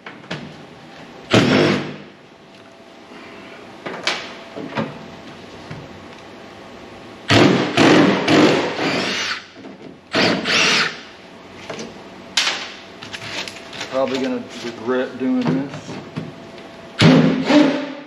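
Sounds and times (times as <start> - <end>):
power drill whining: 8.3 - 9.4, 10.1 - 11.0.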